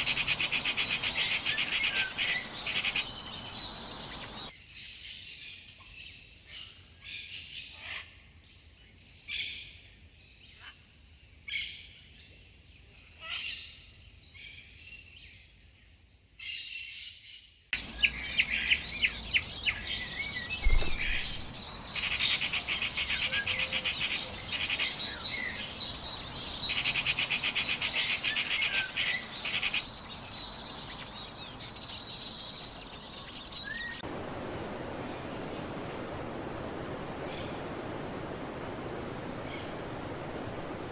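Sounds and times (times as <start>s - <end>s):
birds calling and chirping: 0.0s - 4.5s, 17.8s - 40.9s
bird trills: 17.8s - 32.1s
low thump: 20.6s - 21.6s.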